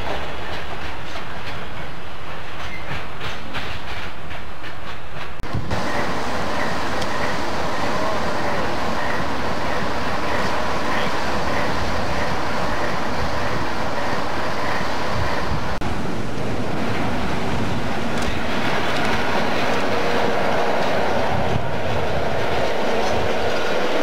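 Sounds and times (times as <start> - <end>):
freight train rolling past: 0.0 - 24.0
diesel locomotive engine running: 5.4 - 24.0.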